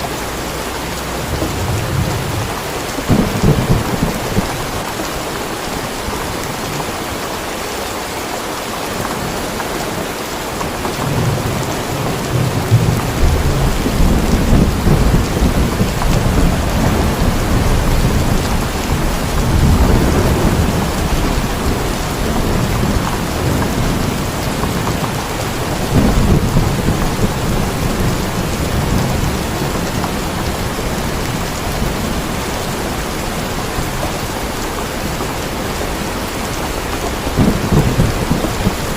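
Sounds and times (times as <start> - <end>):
heavy rain: 0.0 - 38.9
rolling thunder: 1.1 - 5.2, 11.1 - 33.9, 35.7 - 38.9.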